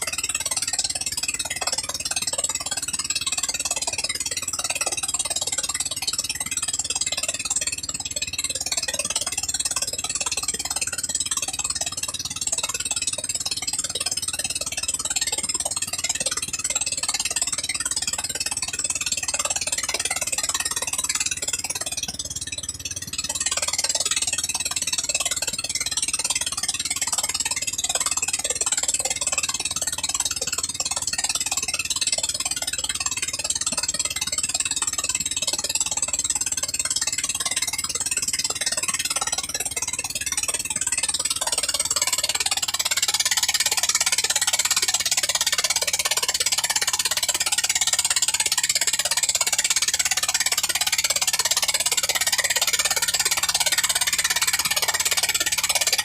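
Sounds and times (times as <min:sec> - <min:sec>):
gasoline engine running: 0:35.2 - 0:56.0.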